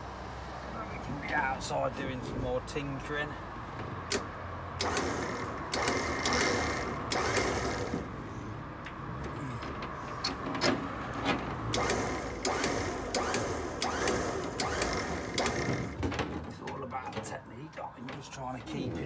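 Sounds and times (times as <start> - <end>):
winch motor humming: 11.7 - 16.0.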